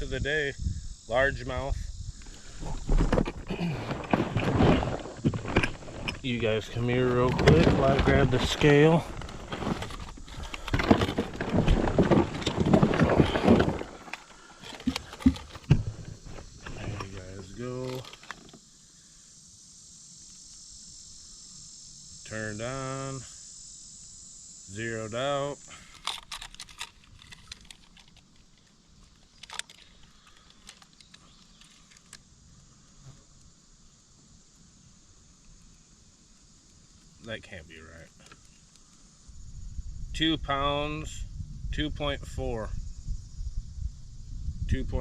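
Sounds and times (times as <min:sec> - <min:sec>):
gear knocking and rattling: 0:07.1 - 0:17.1.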